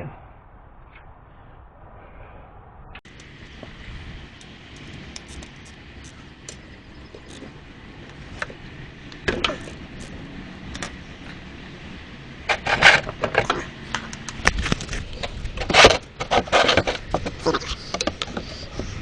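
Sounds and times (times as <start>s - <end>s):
hand tool clicks and scrapes: 3.1s - 11.0s, 12.5s - 19.0s.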